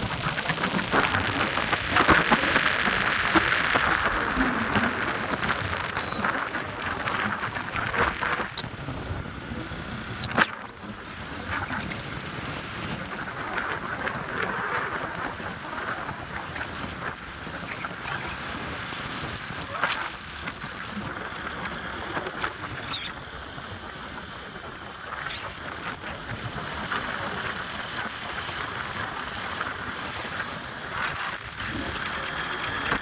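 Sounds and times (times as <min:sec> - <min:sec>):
rumble of travel: 0:00.0 - 0:33.0
wind on microphone: 0:00.0 - 0:33.0.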